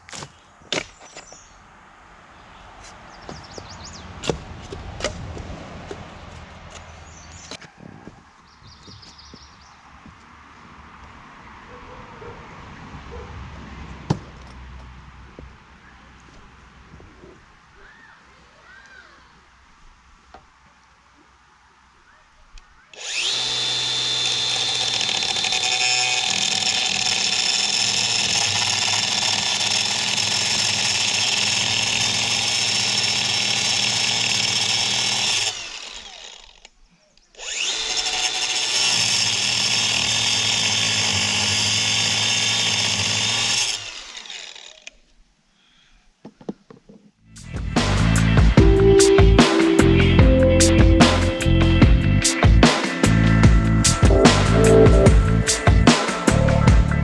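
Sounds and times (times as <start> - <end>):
angle grinder cutting metal: 23.0 - 36.7, 37.4 - 44.9.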